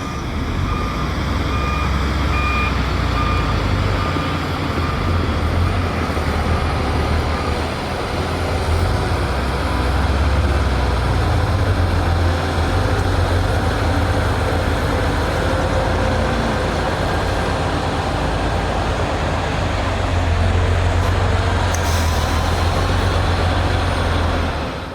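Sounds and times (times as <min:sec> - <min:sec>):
diesel earthmoving machinery rumbling: 0:00.0 - 0:24.9.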